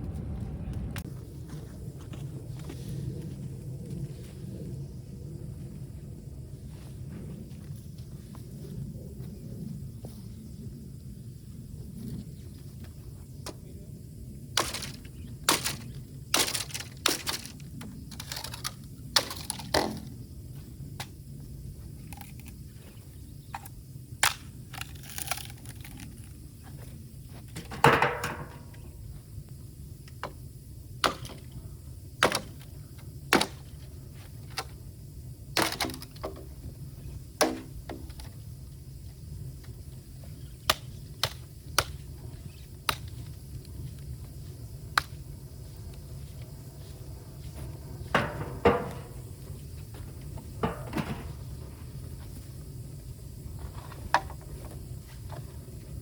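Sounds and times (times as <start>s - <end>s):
fire rumbling: 0.0s - 12.4s, 38.4s - 56.0s
bamboo cracking and popping: 14.6s - 20.1s, 22.0s - 22.6s, 23.5s - 26.4s, 35.6s - 36.3s, 40.6s - 42.0s.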